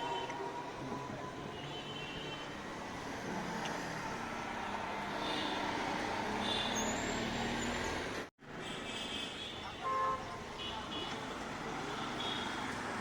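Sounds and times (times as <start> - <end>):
passing vehicle engines: 2.6 - 8.3.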